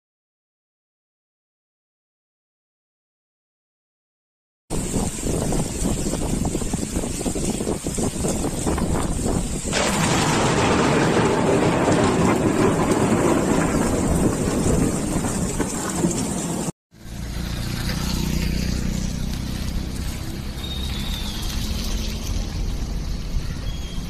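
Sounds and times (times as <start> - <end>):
heavy rain on a concrete roof: 4.7 - 23.9
car on a wet road: 14.1 - 24.0.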